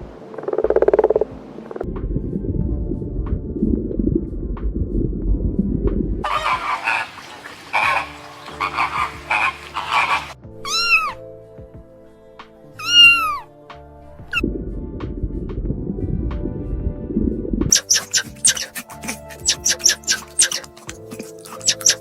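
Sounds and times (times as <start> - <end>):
soft background music: 0.0 - 22.0
raspy noisy calls: 6.2 - 11.2, 17.7 - 22.0
cat meowing: 10.6 - 11.2, 12.8 - 13.5.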